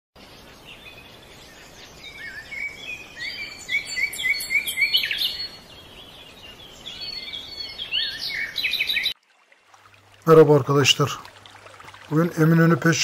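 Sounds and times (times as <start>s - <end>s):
small birds chirping: 0.2s - 9.2s.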